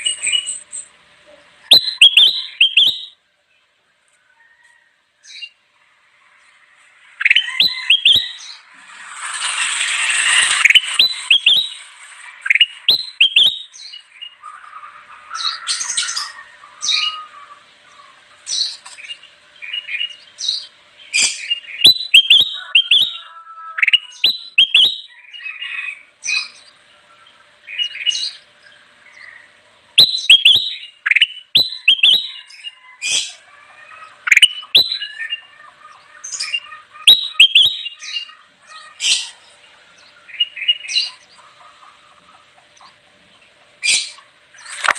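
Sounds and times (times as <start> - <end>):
bulbul chirping and whistling: 1.6 - 3.2, 7.1 - 14.4, 19.7 - 25.2, 30.0 - 33.4, 34.2 - 35.5, 36.2 - 38.3
bird harsh rasping call: 7.0 - 18.8, 19.6 - 26.6, 29.2 - 42.4.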